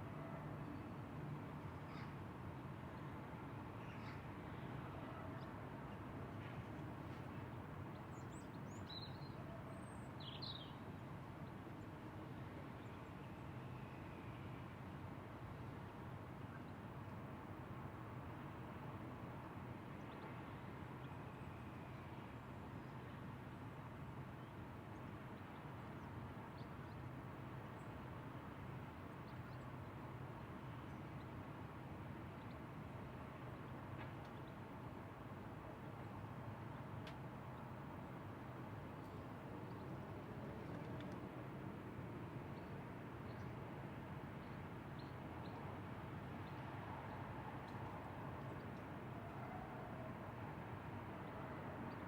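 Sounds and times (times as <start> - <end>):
low outdoor hiss and rumble: 0.0 - 52.0.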